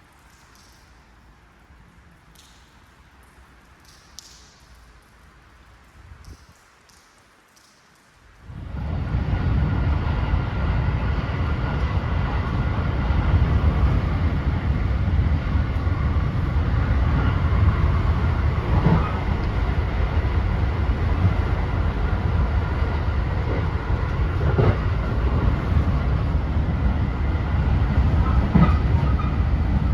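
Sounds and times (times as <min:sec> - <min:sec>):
train rumbling on rails: 0:08.4 - 0:29.9
wheels knocking: 0:09.4 - 0:26.2.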